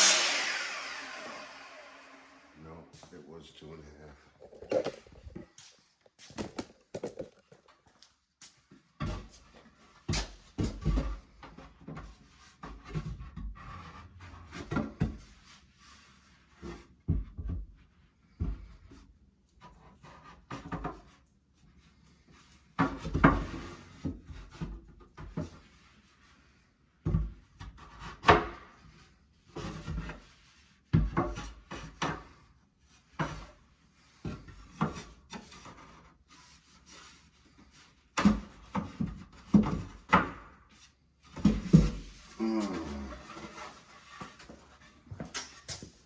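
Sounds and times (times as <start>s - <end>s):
wooden boards knocking and scraping: 6.3s - 7.7s, 41.3s - 42.3s.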